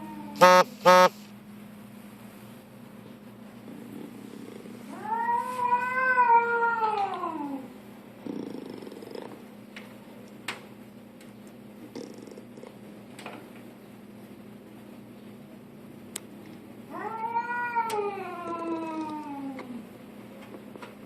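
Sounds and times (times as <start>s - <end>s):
cat meowing: 4.9s - 7.6s, 16.9s - 19.6s.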